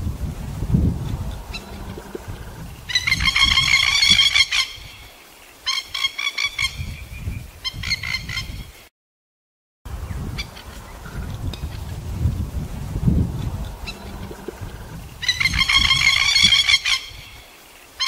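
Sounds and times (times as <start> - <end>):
bird harsh chattering calls: 13.8 - 17.3.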